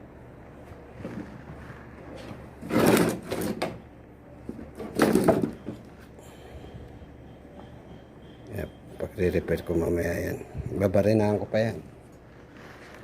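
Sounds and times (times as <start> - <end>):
hard objects scraping rattle: 1.1 - 3.7.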